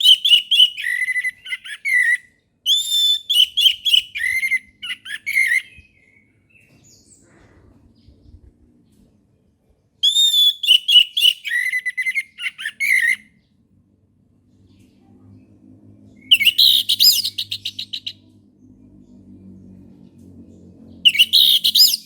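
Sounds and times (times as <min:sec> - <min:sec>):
faint low hum: 0:03.7 - 0:10.0, 0:13.2 - 0:22.0.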